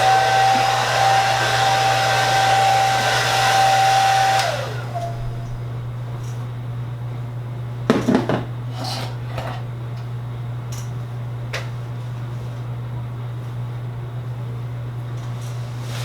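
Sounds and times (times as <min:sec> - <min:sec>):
steady low hum: 0:04.9 - 0:08.8
hard objects clattering: 0:07.9 - 0:09.6.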